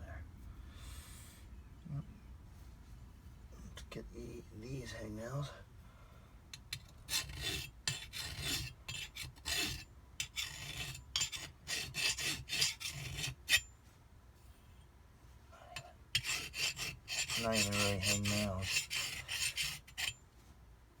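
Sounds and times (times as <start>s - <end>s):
hand file rasping on metal: 6.6s - 13.7s, 16.2s - 20.2s.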